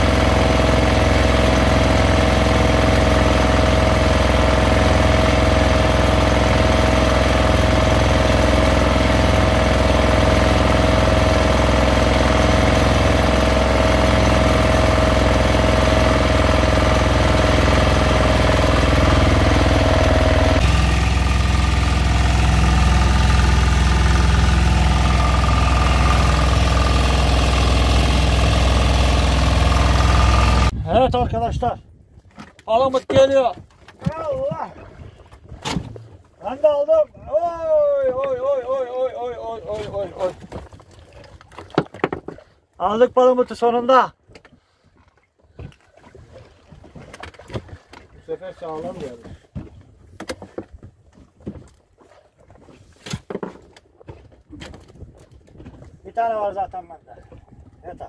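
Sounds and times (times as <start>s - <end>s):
boat engine running: 0.0s - 30.9s.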